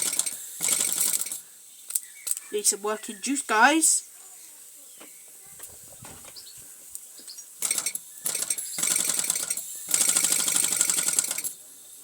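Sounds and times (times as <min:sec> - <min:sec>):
toy steam engine chuffing: 0:00.0 - 0:01.5, 0:07.6 - 0:11.7.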